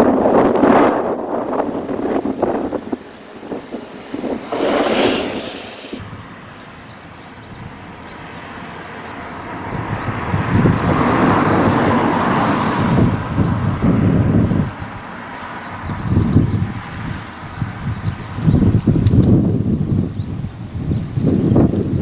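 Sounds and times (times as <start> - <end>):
electric train rumbling: 0.0 - 6.0
wind gusts on microphone: 0.0 - 6.3, 9.6 - 22.0.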